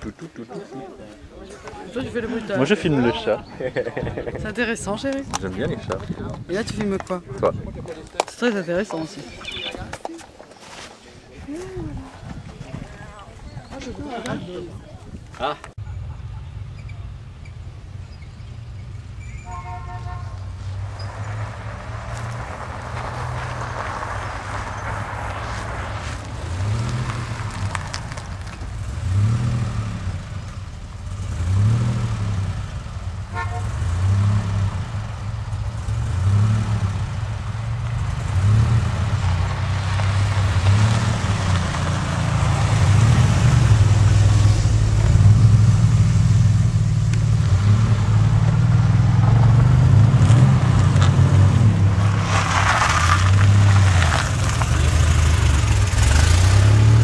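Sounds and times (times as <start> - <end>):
cars driving past: 15.8 - 57.0.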